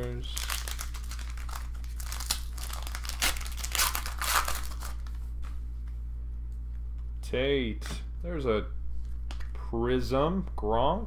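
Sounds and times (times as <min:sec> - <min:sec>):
wrapper crinkling and tearing: 0:00.0 - 0:05.2
steady low hum: 0:00.0 - 0:11.0.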